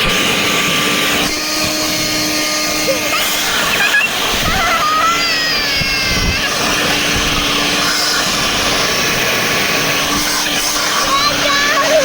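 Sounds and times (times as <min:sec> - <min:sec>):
leaf blower running: 0:00.0 - 0:12.0
child shrieking with delight: 0:02.9 - 0:06.9.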